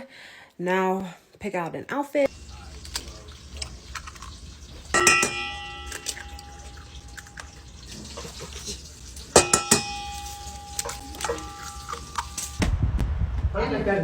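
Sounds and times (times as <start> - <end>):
hard objects clinking: 2.6 - 12.6
bell-like ringing strike: 5.0 - 7.7, 9.4 - 12.6.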